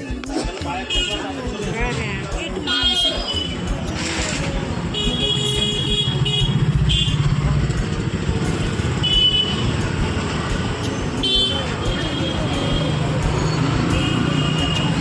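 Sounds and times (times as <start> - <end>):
vehicle engine running: 3.6 - 14.8.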